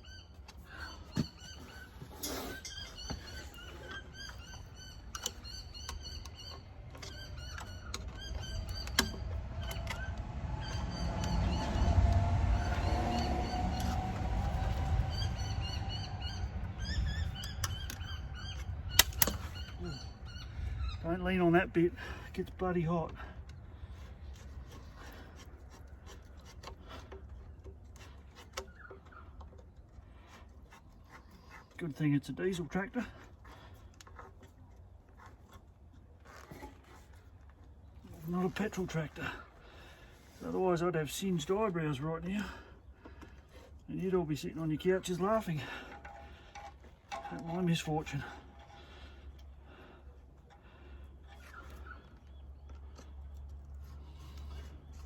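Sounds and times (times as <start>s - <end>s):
small birds chirping: 0.0s - 26.1s
low rumble: 8.3s - 21.2s.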